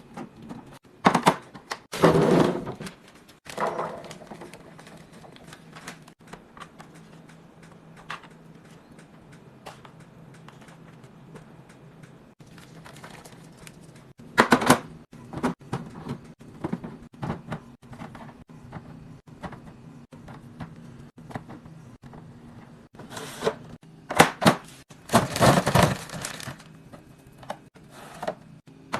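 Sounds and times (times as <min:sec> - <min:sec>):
food packages clicking and knocking: 0:00.0 - 0:22.3, 0:24.1 - 0:28.9
containers clattering: 0:25.0 - 0:26.7.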